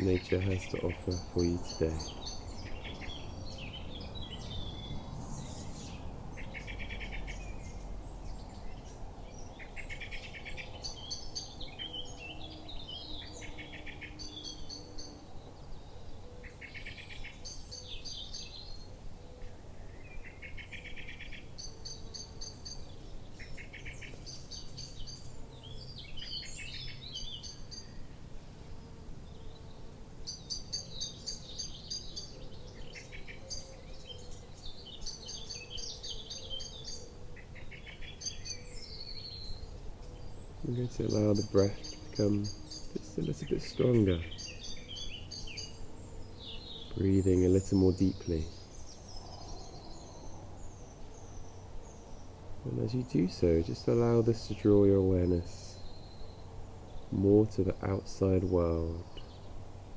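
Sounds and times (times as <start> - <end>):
birds calling and singing: 0.0 - 59.9.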